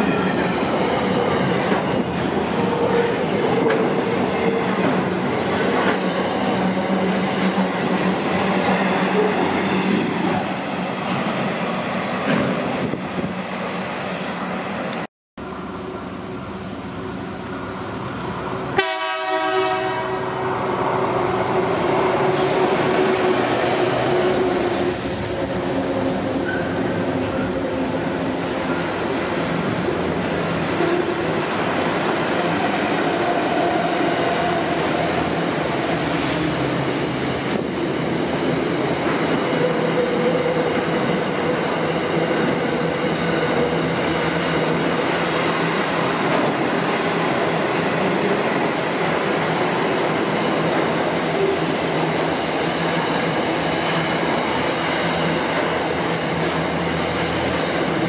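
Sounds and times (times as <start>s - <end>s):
high squeal from train wheels: 0.0s - 3.4s, 16.0s - 18.8s, 20.2s - 31.3s
train horn: 18.8s - 20.5s.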